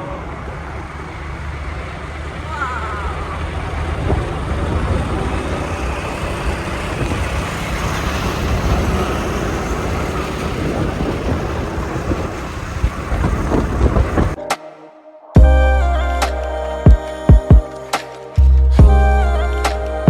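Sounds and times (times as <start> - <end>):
motorcycle engine: 0.0 - 14.4
tyre and road rumble: 0.0 - 14.4
wind buffeting microphone: 3.0 - 14.4.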